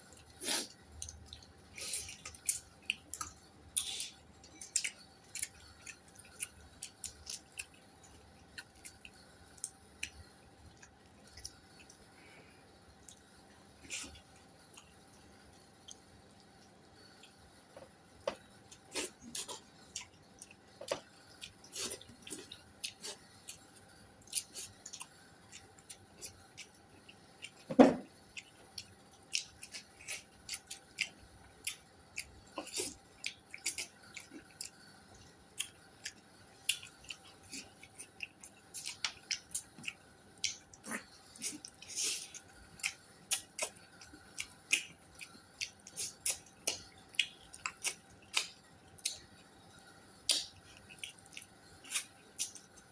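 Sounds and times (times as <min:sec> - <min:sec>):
wet chewing and mouth smacks: 0:28.3 - 0:49.3, 0:50.3 - 0:52.9.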